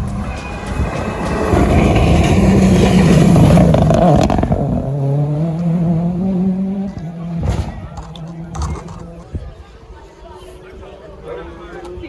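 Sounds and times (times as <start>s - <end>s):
rally car engine passing by: 0.0s - 9.5s.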